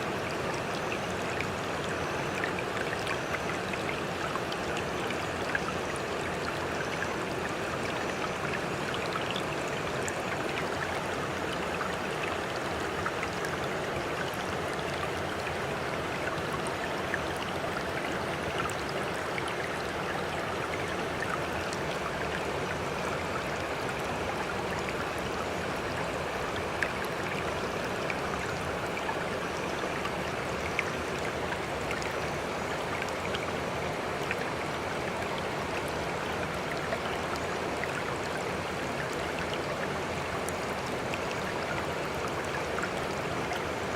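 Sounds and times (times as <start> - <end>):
running water: 0.0 - 43.9.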